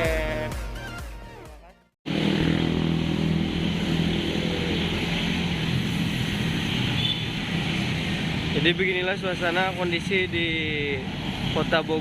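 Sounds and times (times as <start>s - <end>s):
vehicle engine hum: 2.1s - 8.6s
street traffic noise: 2.1s - 12.0s.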